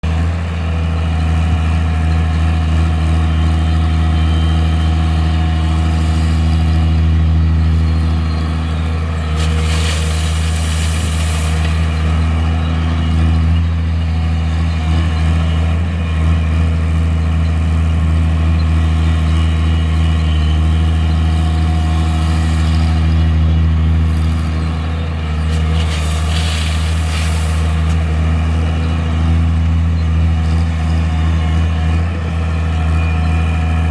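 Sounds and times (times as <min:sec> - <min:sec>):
excavator diesel engine humming: 0:00.0 - 0:33.9
crushed stone tipping into truck: 0:09.3 - 0:12.2, 0:25.4 - 0:28.1.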